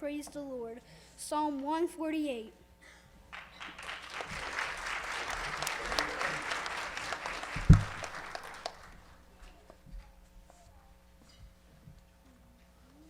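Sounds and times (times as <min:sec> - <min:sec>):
audience applauding: 0:03.3 - 0:09.3.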